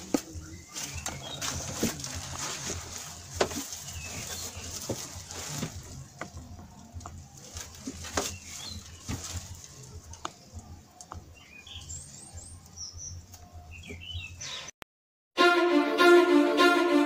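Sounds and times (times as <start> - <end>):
small birds chirping: 0.0 - 14.8
loud violin music: 15.4 - 17.0.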